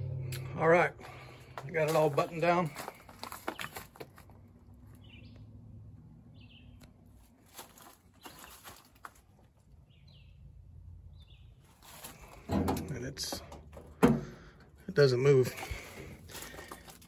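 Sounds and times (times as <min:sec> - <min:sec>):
bird chirping: 0:04.9 - 0:05.5, 0:06.3 - 0:07.0, 0:09.8 - 0:12.5.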